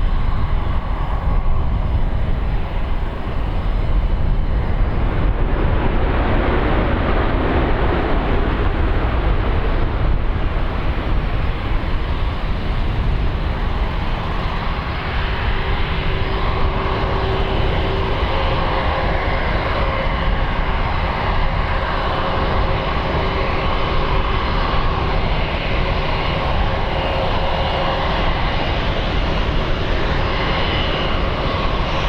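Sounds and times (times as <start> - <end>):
jet engines roaring: 0.0 - 32.0
faint whine: 7.2 - 32.0.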